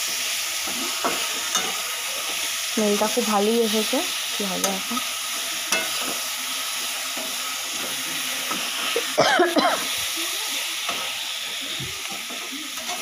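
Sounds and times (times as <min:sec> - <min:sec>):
curry sizzling in a pan: 0:00.0 - 0:13.0
metal spatula scraping pan: 0:04.6 - 0:06.2.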